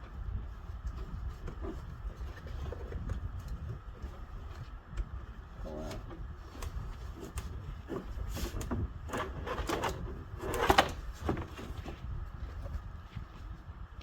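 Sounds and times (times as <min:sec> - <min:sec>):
scraping on cart body: 0:05.7 - 0:12.1.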